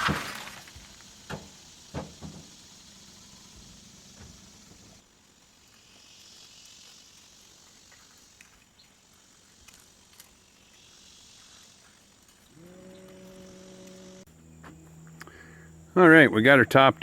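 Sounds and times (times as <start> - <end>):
insects buzzing: 0.0 - 17.0
low hum: 12.3 - 17.0.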